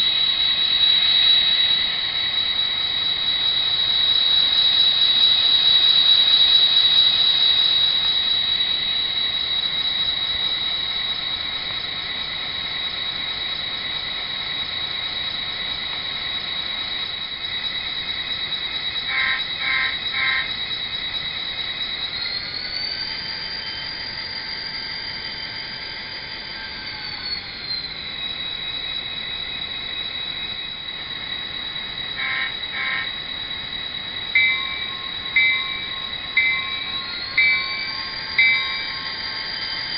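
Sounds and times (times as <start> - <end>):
diesel locomotive engine with whine: 0.0 - 39.9
brief tonal blips: 32.2 - 33.2, 34.4 - 39.0.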